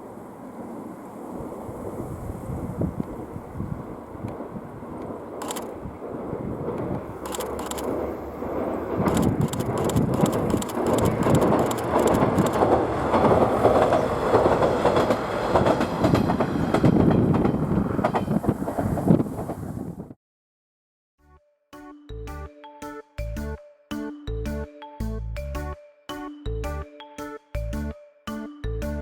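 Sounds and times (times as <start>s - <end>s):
diesel railcar running past: 0.0s - 20.0s
wheels clicking over rail joints: 6.6s - 19.7s.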